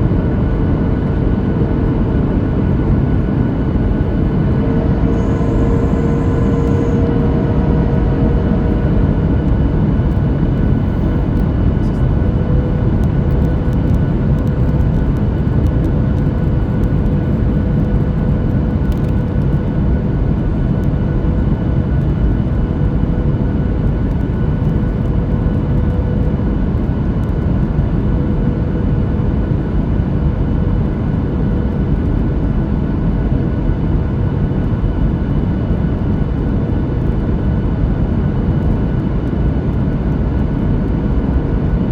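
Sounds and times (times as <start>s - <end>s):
airliner cabin noise: 0.0s - 41.9s
faint steady tones: 2.9s - 8.1s.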